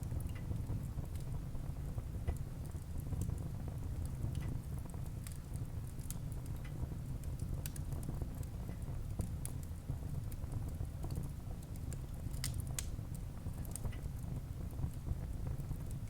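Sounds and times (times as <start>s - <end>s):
burning wood crackling and popping: 0.0s - 16.0s
low rumble of flames: 0.0s - 16.0s.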